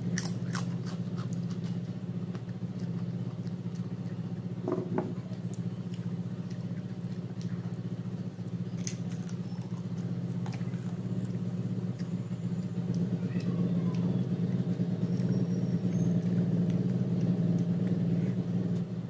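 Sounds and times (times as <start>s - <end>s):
person chewing food: 0.0s - 13.1s
low background hum: 0.0s - 19.0s.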